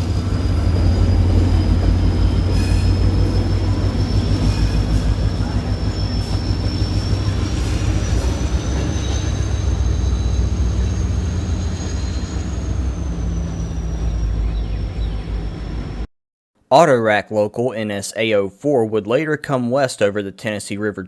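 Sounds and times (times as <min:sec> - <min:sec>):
diesel locomotive engine drone: 0:00.0 - 0:16.1
thin high whine: 0:00.0 - 0:16.1.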